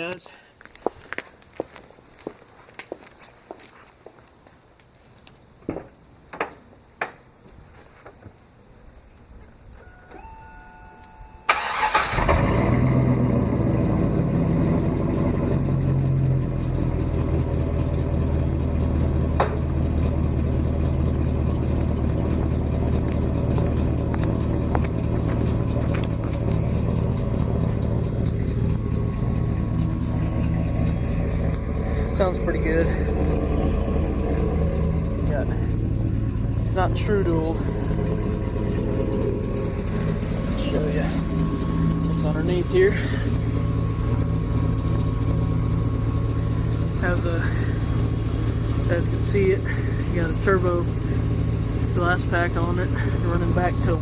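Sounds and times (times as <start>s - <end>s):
engine idling: 9.7s - 54.0s
electronic tone: 9.8s - 11.6s.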